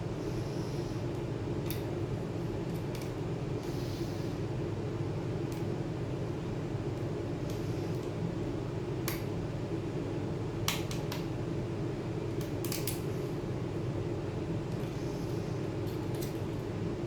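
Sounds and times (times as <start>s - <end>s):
steady low hum: 0.0s - 17.0s
small tools clicking and tapping: 12.4s - 13.0s.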